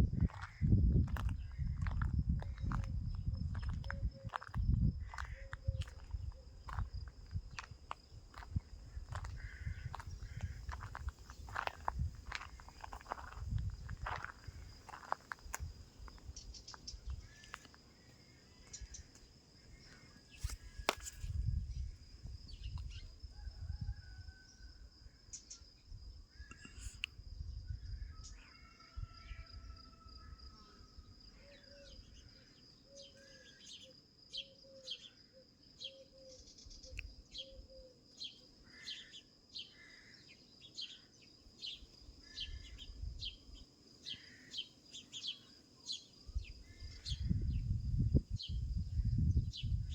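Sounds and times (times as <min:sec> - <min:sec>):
high insect trill: 0:00.1 - 0:49.9
small birds chirping: 0:00.3 - 0:23.1.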